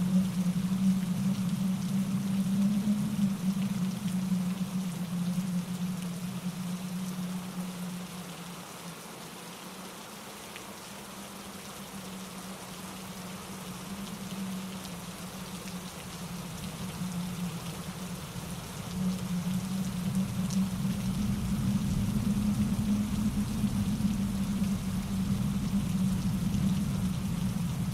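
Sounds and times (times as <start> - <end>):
rain pattering on leaves: 0.0 - 27.9
wind in trees: 0.0 - 27.9.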